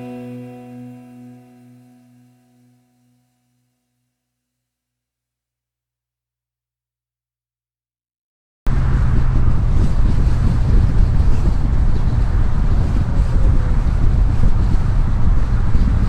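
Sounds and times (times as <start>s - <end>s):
car road and wind noise: 8.7s - 16.0s.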